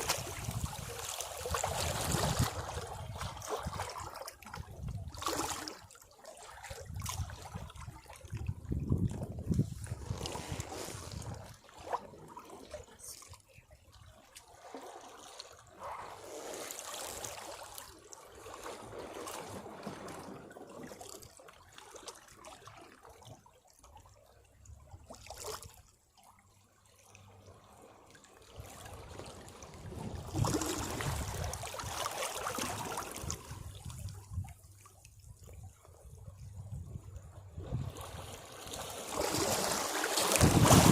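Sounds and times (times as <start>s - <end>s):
sea waves washing against rocks: 29.0s - 33.7s, 37.7s - 40.9s.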